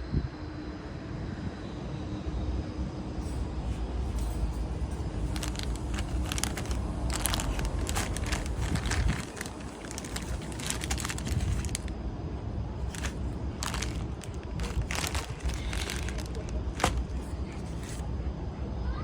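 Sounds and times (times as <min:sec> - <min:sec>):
crackling and rustling clicks: 0:05.0 - 0:11.9, 0:12.9 - 0:18.0
wind buffeting microphone: 0:05.0 - 0:11.9.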